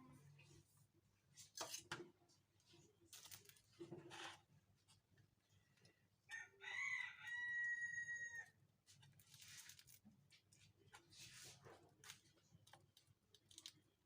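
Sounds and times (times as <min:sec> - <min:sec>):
rooster crowing: 0:06.3 - 0:08.6.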